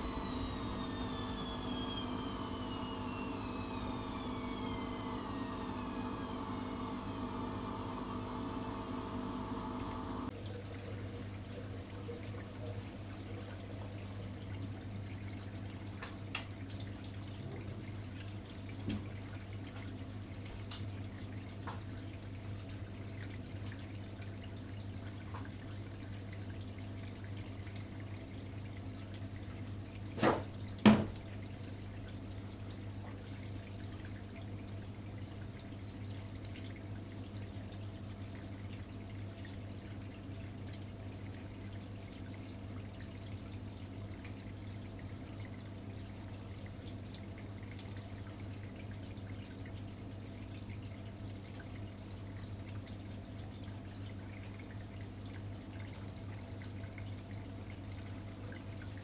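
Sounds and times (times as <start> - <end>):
washing machine low hum: 0.0 - 10.3
water sloshing in washing machine: 0.0 - 10.3, 30.1 - 31.4
washing machine knocks: 30.2 - 31.2.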